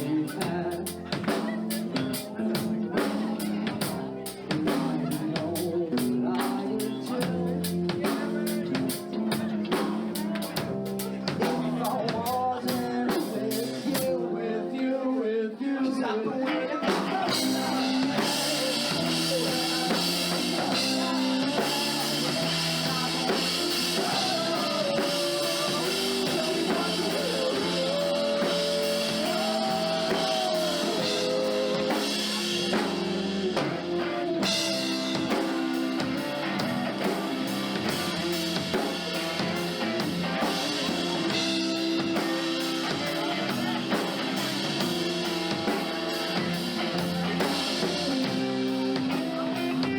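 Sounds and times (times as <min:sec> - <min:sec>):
live rock band playing: 0:00.0 - 0:15.2, 0:16.8 - 0:49.9.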